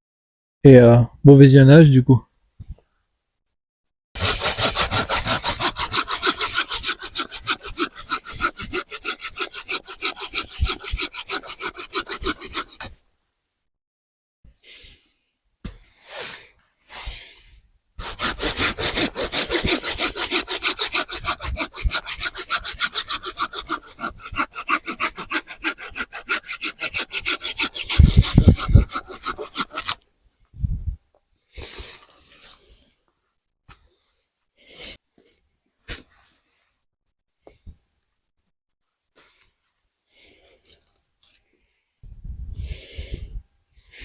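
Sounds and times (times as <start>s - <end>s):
short scrapes: 4.2s - 12.9s, 15.8s - 30.0s
hand saw cutting wood: 4.2s - 13.0s, 18.0s - 30.0s.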